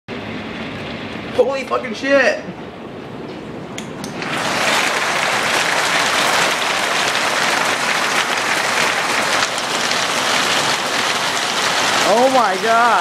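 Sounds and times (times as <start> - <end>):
heavy hail pelting: 4.2 - 13.0.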